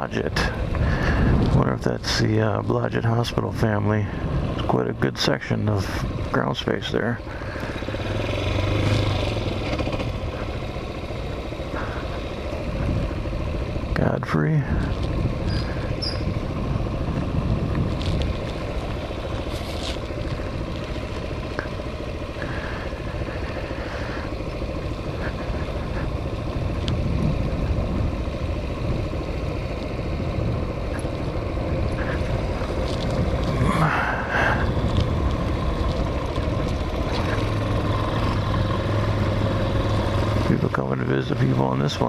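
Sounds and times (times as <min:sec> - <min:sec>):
motorcycle engine running: 0:00.0 - 0:42.0
steady low hum: 0:00.0 - 0:42.0
wind buffeting microphone: 0:00.4 - 0:01.8, 0:12.7 - 0:13.3, 0:14.7 - 0:19.6, 0:25.0 - 0:29.3, 0:30.0 - 0:37.6.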